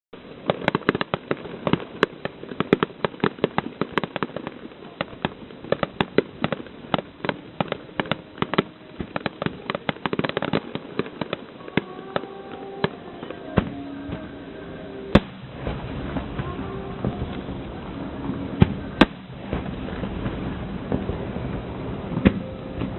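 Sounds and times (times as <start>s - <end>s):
fireworks bursts: 0.2s - 22.9s
loud single firework bang: 15.1s - 17.5s, 18.6s - 21.2s.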